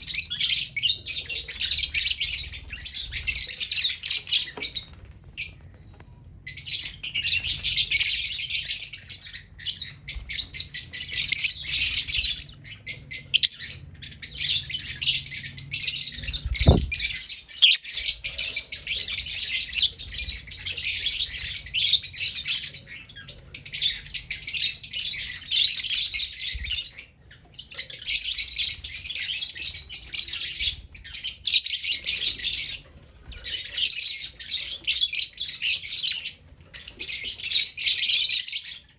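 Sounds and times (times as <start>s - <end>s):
lovebirds chirping shrilly: 6.6s - 27.2s
low thud: 16.4s - 17.2s.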